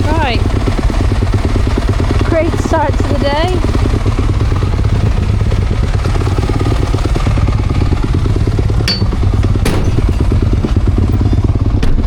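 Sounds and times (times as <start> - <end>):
motocross bike engine running: 0.0 - 12.0
sharp knocks: 8.8 - 10.4.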